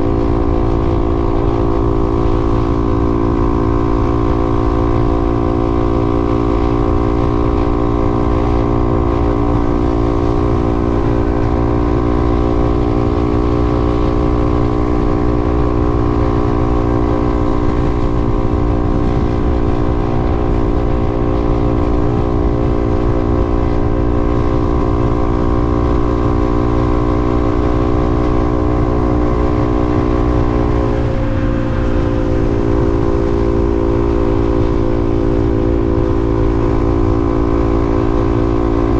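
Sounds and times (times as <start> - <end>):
vehicle driving on highway: 0.0 - 38.9.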